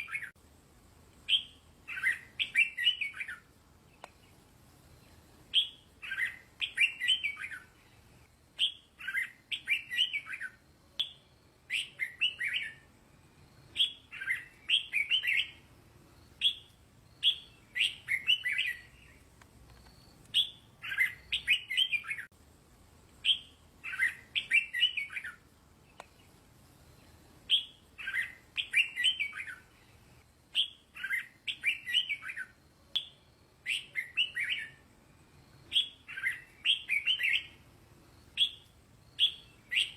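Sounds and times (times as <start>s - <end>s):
bulbul singing fluty phrases: 13.7s - 15.7s, 27.4s - 34.9s.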